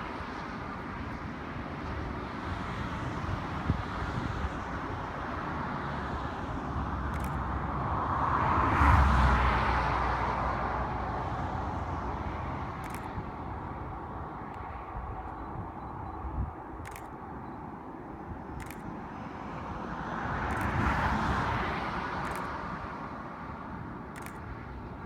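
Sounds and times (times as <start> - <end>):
outdoor background noise: 0.0 - 25.0
short clicks: 7.1 - 7.5, 12.8 - 13.4, 16.8 - 17.7, 18.5 - 19.1, 20.5 - 21.1, 22.2 - 22.6, 24.1 - 24.5.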